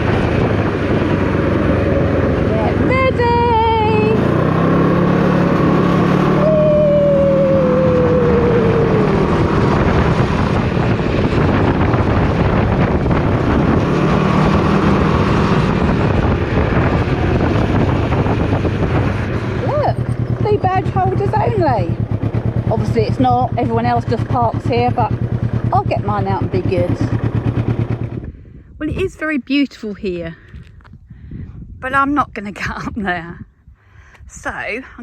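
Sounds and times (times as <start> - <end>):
engine running: 0.0 - 29.1
wind noise on microphone: 0.0 - 35.0
falling whine: 3.9 - 20.6.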